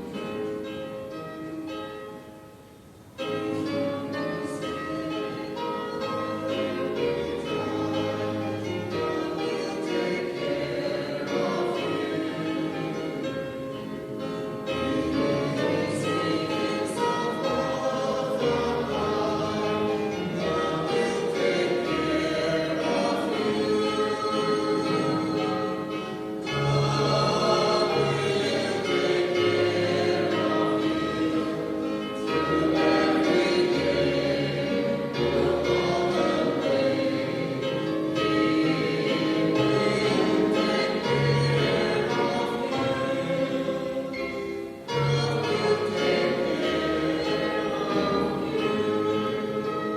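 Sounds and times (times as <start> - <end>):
instrumental accompaniment: 0.0 - 49.9
choir singing a hymn: 3.2 - 49.9.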